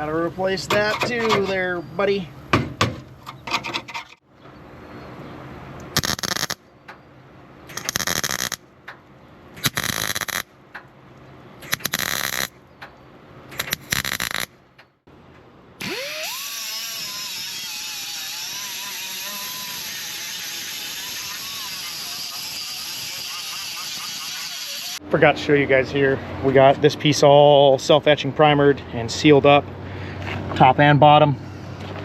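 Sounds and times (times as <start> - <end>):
power tool on sheet metal: 6.0 - 6.6, 7.7 - 8.6, 9.6 - 10.4, 11.7 - 12.5, 13.5 - 14.5, 15.8 - 25.0
tool spinning up with whine: 6.0 - 6.6, 7.7 - 8.6, 9.6 - 10.4, 11.6 - 12.5, 13.6 - 14.5, 15.8 - 25.0.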